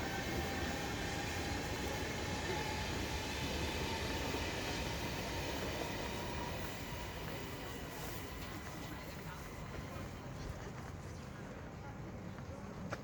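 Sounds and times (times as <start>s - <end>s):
train rumbling on rails: 0.0s - 12.4s.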